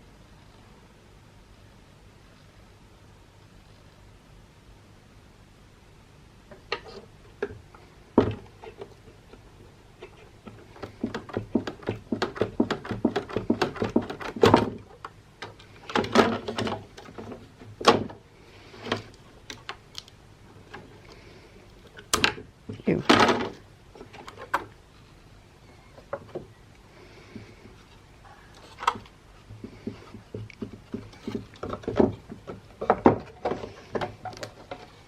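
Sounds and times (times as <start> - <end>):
plastic and metal parts clattering: 8.2 - 21.1, 21.8 - 24.8, 27.9 - 35.0.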